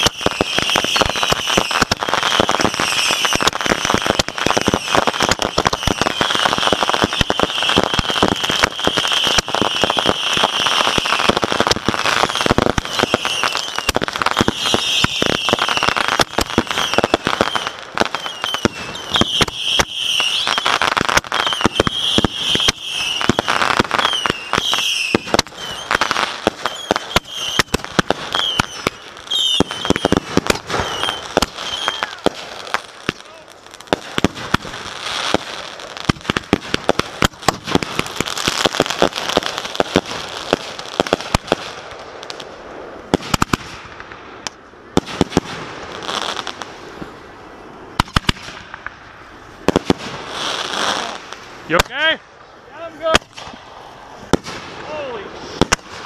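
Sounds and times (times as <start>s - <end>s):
fireworks shrill whistles: 0.0s - 35.7s
fireworks crackling and popping: 0.0s - 56.0s.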